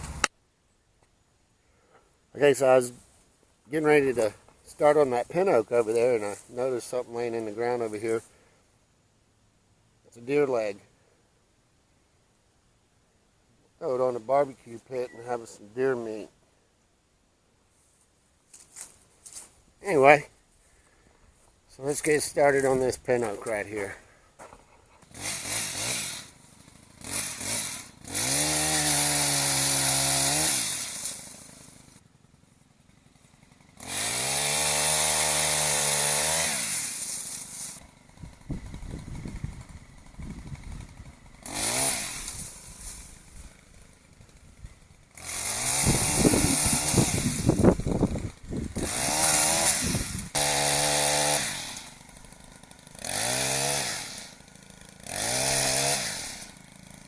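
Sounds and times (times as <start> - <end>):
chainsaw cutting: 0.0 - 0.3, 2.6 - 8.6, 17.7 - 57.0
chainsaw revving: 0.0 - 0.3, 3.7 - 8.4, 18.6 - 57.0.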